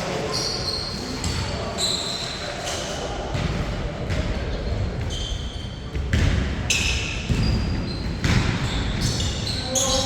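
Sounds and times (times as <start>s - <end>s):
sneakers squeaking on floor: 0.0s - 10.0s
basketball bouncing: 5.8s - 9.2s.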